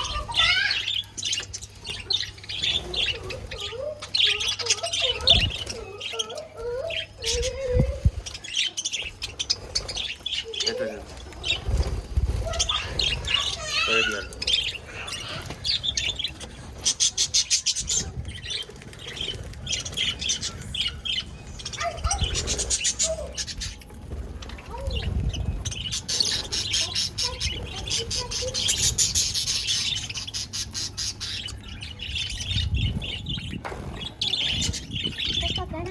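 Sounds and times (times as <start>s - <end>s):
budgerigars chirping: 0.0s - 7.6s, 8.2s - 35.9s.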